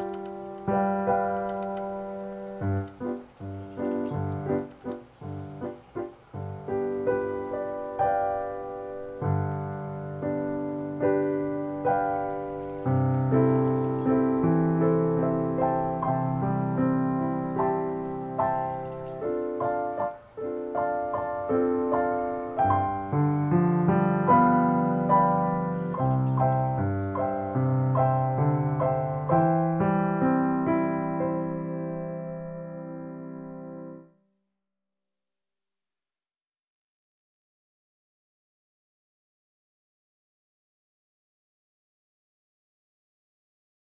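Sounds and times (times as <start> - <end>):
gentle piano melody: 0.0 - 34.2.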